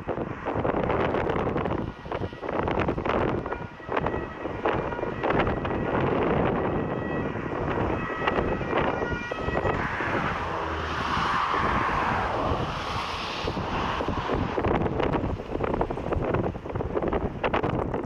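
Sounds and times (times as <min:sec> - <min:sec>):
wind buffeting microphone: 0:00.0 - 0:18.0
jet airliner engine: 0:09.6 - 0:16.7.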